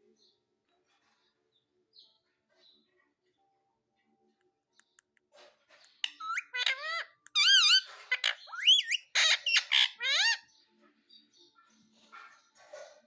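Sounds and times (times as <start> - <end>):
parrot squeaky warbling calls: 6.0 - 10.5.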